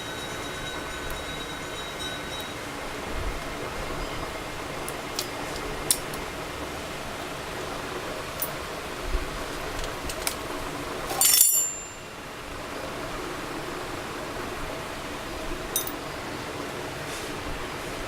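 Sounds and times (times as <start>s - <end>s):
bright clink with high ring: 0.0s - 2.8s, 11.1s - 12.4s, 15.7s - 16.0s.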